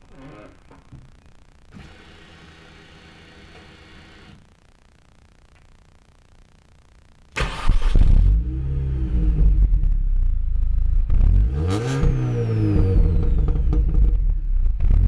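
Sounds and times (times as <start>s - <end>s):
car engine starting and revving: 7.4s - 9.9s, 11.0s - 15.0s.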